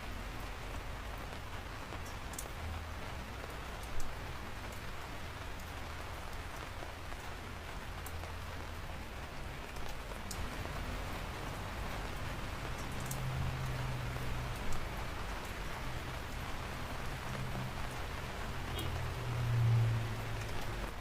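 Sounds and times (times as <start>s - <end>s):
steady rainfall: 0.0s - 21.0s
water drips: 12.5s - 15.6s.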